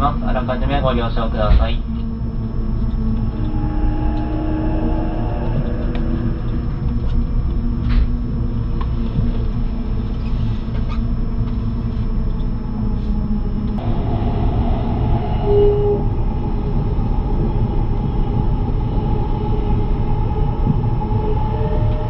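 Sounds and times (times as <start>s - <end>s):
wheels rumbling on rails: 2.2s - 22.0s
brief tone: 2.4s - 7.8s, 13.8s - 16.8s, 19.2s - 22.0s.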